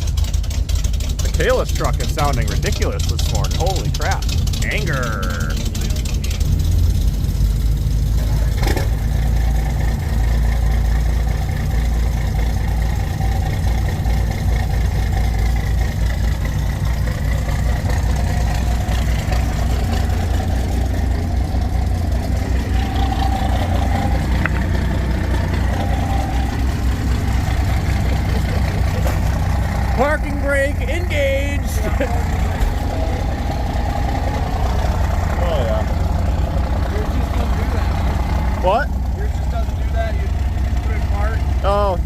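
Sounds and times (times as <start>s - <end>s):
truck engine idling: 0.0s - 42.0s.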